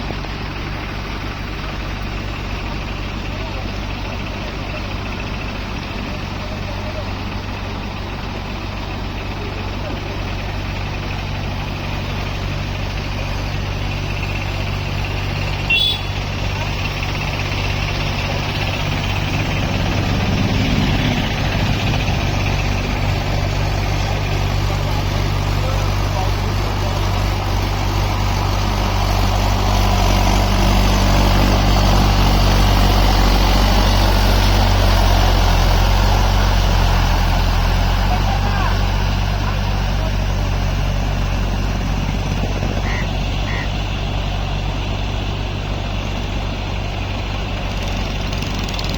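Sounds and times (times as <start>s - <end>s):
diesel tractor engine running: 0.0s - 48.9s.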